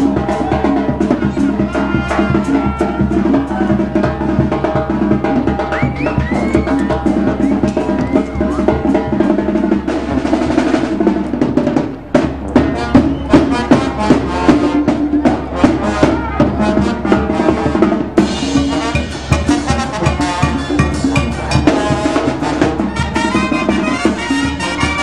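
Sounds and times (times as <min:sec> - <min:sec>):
bass drum and snare: 0:00.0 - 0:25.0
brass band playing: 0:00.0 - 0:25.0.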